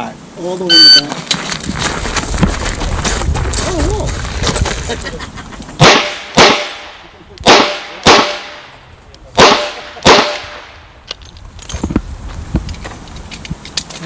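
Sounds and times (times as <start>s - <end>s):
handgun shots with echo: 9.4s - 10.6s.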